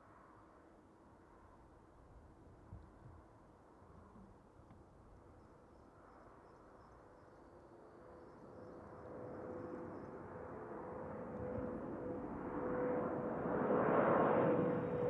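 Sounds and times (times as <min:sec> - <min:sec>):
jet engines rushing and whining: 0:10.5 - 0:15.0.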